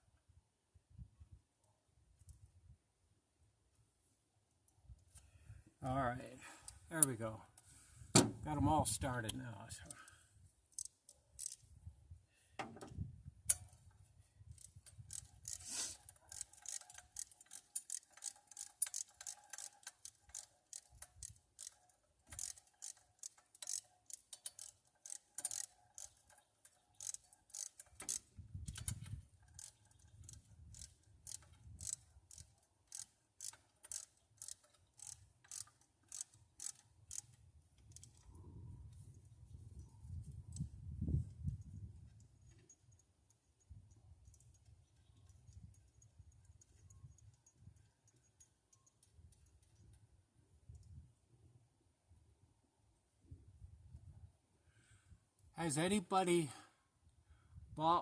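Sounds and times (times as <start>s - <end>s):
ratchet wrench clicking: 10.7s - 11.6s, 14.5s - 38.3s.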